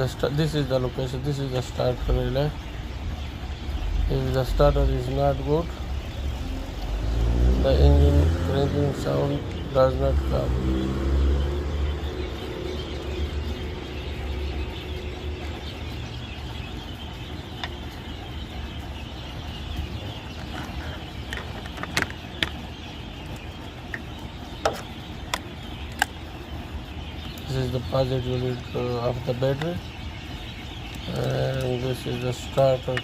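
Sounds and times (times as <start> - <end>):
vehicle engine rumble: 0.0 - 33.0.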